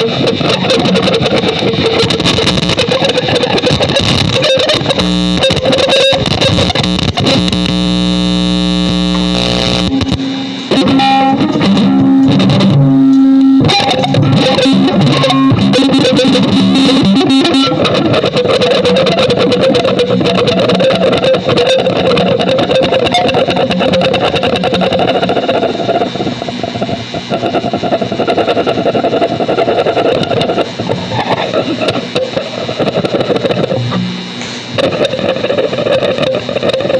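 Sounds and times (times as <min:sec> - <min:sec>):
distorted electric guitar drone: 0:00.0 - 0:36.9.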